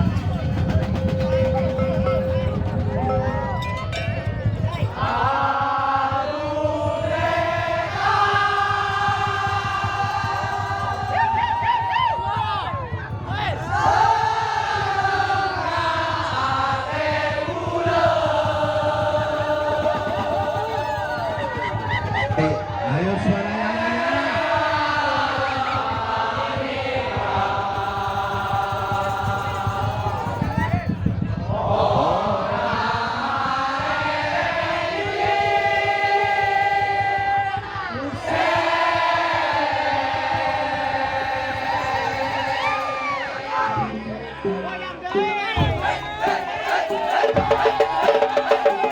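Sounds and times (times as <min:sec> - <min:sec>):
wavering melody notes: 0:00.0 - 0:05.1
drum beat: 0:00.0 - 0:22.9, 0:23.7 - 0:31.2, 0:45.6 - 0:48.9
dense percussion: 0:00.0 - 0:42.4, 0:45.6 - 0:48.9.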